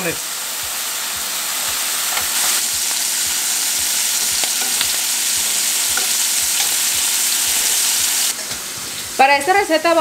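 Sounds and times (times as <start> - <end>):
shrimp sizzling in a frying pan: 0.0 - 10.0.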